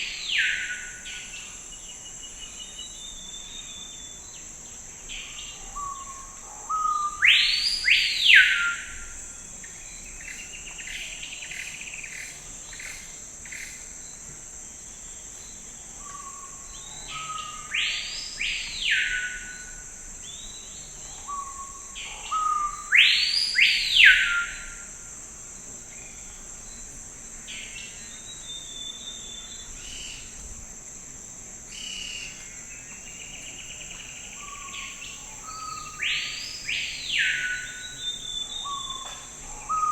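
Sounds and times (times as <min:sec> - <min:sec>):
high-pitched insect drone: 0:15.4 - 0:39.9
faint bird calls: 0:33.9 - 0:39.9.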